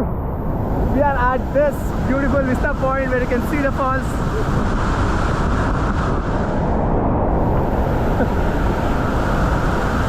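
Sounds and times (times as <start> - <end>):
waterfall roaring: 0.5 - 5.7, 7.3 - 10.0.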